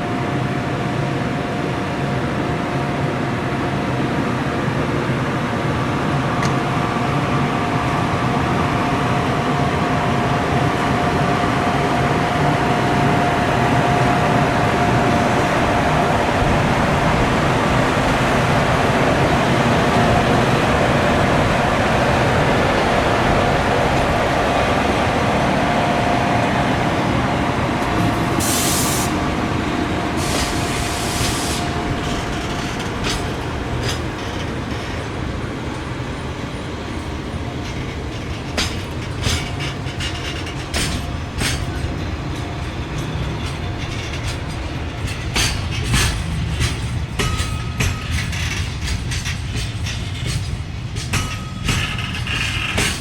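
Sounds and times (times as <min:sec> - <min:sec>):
train rumbling on rails: 0:00.0 - 0:53.0
wheel clicks over rail joints: 0:30.2 - 0:35.8, 0:37.0 - 0:53.0.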